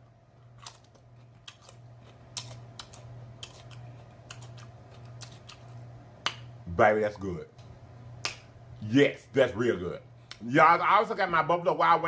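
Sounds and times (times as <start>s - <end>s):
crunching and chewing pepper: 0.0s - 6.5s
faint low hum: 0.0s - 12.0s.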